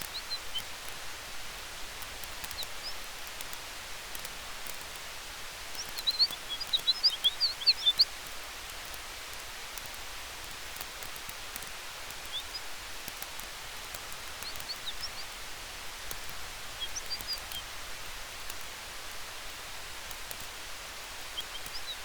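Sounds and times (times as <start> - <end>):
campfire crackling: 0.0 - 22.0
wind through trees: 0.0 - 22.0
high bird chirps: 5.8 - 8.1, 14.4 - 15.3, 16.8 - 17.6, 21.4 - 22.0.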